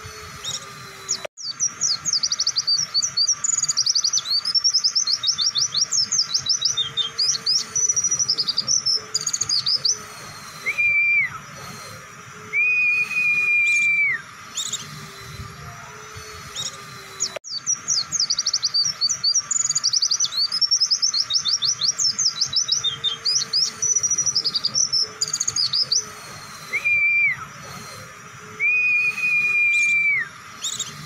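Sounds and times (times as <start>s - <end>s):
bird chirping rapidly: 0.0s - 31.0s
bird whistled notes: 0.0s - 31.0s.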